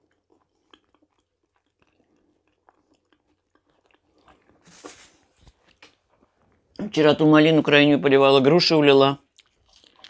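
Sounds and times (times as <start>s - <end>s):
faint chewing: 0.0s - 6.9s, 9.2s - 10.0s.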